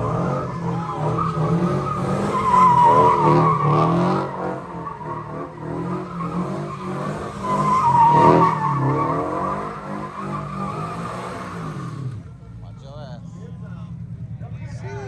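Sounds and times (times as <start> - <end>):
tyres squealing: 0.0 - 12.1
car engine revving: 0.0 - 12.6.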